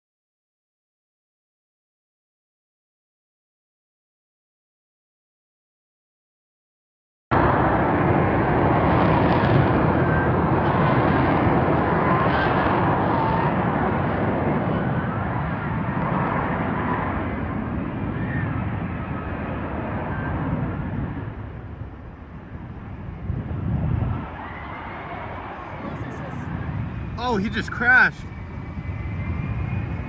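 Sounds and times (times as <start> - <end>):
jet engine rushing: 7.3 - 30.0.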